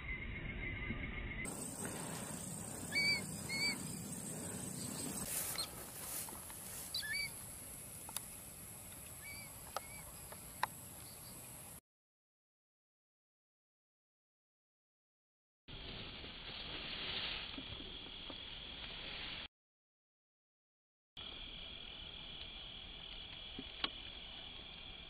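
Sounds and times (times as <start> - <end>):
high-pitched whine: 0.0 - 5.7
bird chirping: 0.0 - 5.8, 6.8 - 7.4, 9.2 - 11.7.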